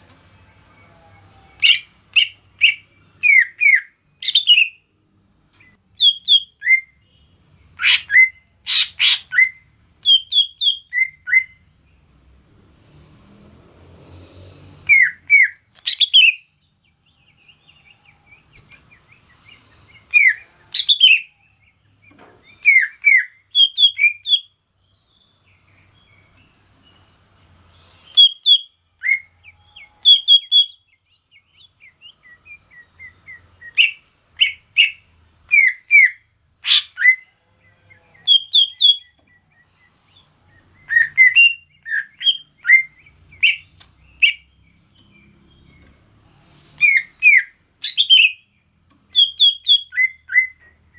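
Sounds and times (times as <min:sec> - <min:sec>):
bird whistled chirps: 0:01.5 - 0:04.8, 0:06.0 - 0:07.0, 0:07.8 - 0:11.6, 0:14.8 - 0:16.5, 0:19.4 - 0:21.4, 0:22.5 - 0:24.5, 0:28.0 - 0:29.3, 0:30.0 - 0:37.3, 0:38.2 - 0:39.9, 0:40.5 - 0:44.5, 0:46.8 - 0:48.5, 0:49.1 - 0:50.8.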